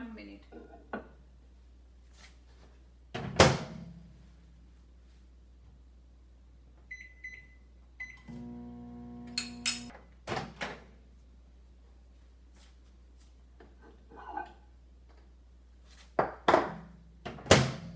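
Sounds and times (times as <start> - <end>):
microwave oven humming: 7.0 - 9.9.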